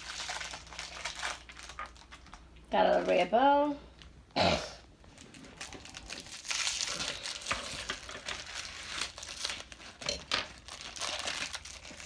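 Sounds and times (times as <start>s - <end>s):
plastic wrapping crinkling: 0.0s - 3.3s, 5.0s - 12.0s.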